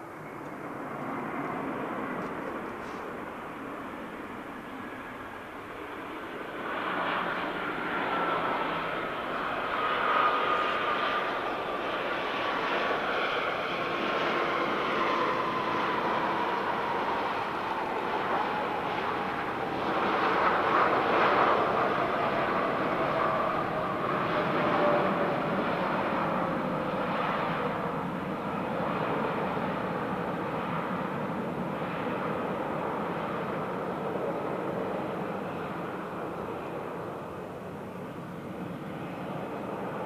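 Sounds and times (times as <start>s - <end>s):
jet engines whining: 0.0s - 30.6s.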